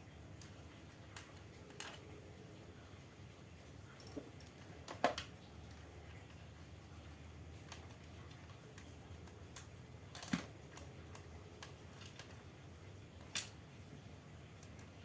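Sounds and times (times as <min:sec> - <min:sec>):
clicks and taps of fan parts: 0:04.0 - 0:05.4, 0:13.2 - 0:13.6.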